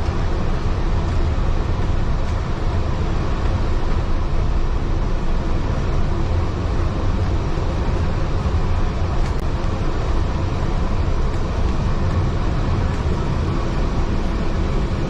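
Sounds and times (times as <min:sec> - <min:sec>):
rumble of train wheels on rails: 0:00.0 - 0:15.0.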